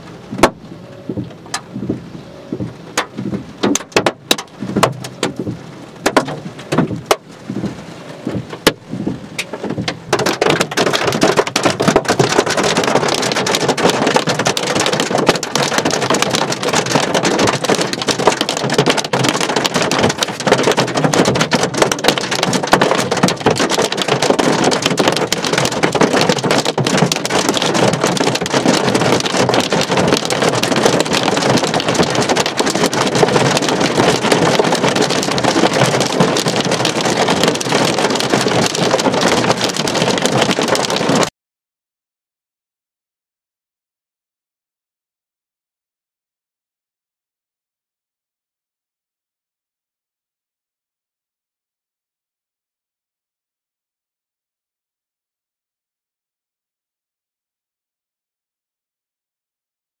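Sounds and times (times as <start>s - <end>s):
hailstones striking hard surface: 3.0s - 7.2s, 9.6s - 41.3s.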